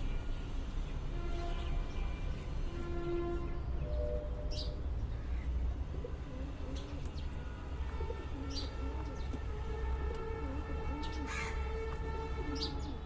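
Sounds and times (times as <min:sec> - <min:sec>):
pigeons cooing: 0:05.7 - 0:13.0.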